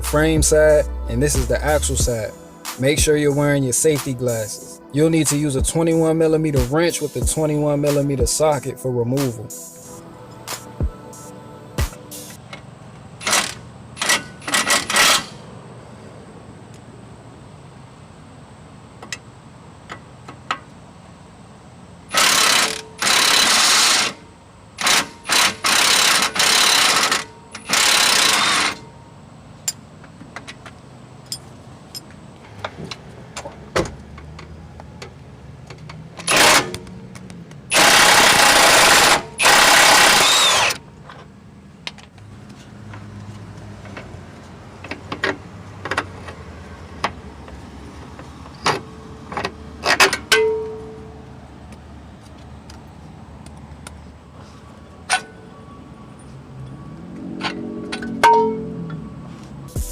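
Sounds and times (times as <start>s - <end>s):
impact wrench bursts: 13.2s - 15.5s, 22.1s - 24.2s, 24.8s - 28.9s, 36.2s - 36.9s, 37.7s - 40.8s
tools clicking and knocking: 29.6s - 42.3s, 44.8s - 46.4s, 47.0s - 50.9s.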